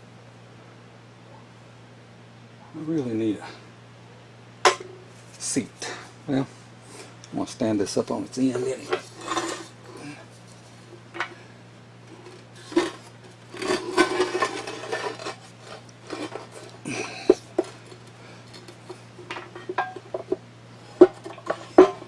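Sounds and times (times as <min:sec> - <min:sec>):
metal parts clattering: 0:12.2 - 0:20.3
metal parts knocking and clinking: 0:13.6 - 0:20.4.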